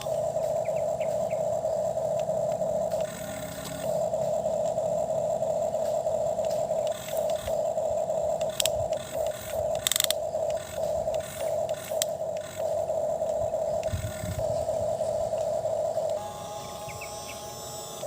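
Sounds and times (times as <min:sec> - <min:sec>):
toy motor and gears whirring: 0:00.0 - 0:18.0
sharp clicks: 0:02.1 - 0:04.9, 0:05.5 - 0:16.3.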